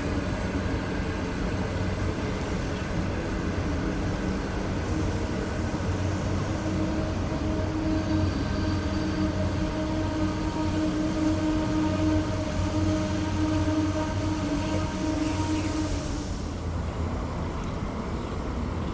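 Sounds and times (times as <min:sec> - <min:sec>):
train rumbling by: 0:00.0 - 0:18.9
even-pitched hum: 0:03.8 - 0:16.7.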